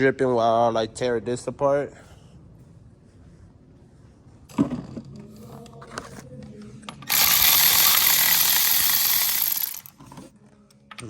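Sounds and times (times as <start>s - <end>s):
ratchet wrench clicking: 7.1s - 9.9s.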